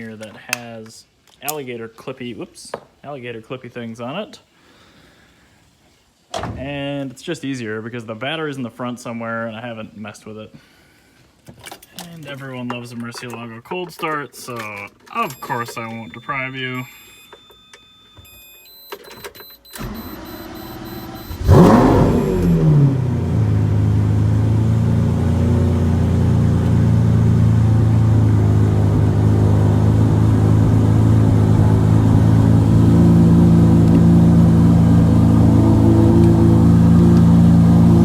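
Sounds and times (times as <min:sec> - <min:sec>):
electronic beeps: 0:15.1 - 0:22.7
car engine revving and idling: 0:19.8 - 0:38.0.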